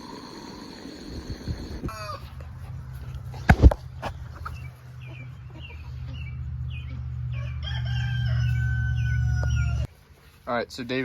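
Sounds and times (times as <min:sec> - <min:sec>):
chickens clucking: 0:00.0 - 0:09.9
steady low rumble: 0:01.2 - 0:09.9.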